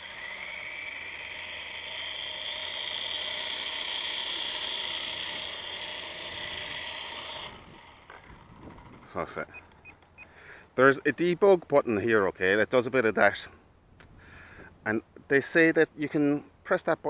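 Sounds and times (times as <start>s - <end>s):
toy helicopter rotor whirring: 0.0s - 10.3s.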